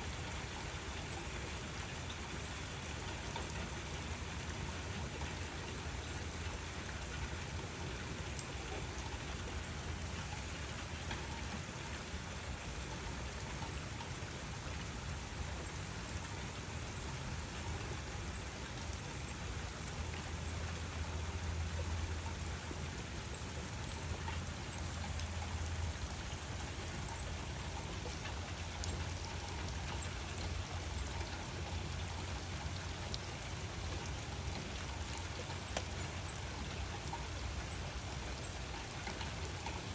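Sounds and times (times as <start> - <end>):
rain falling: 0.0 - 39.9
single raindrops ticking: 0.3 - 39.9.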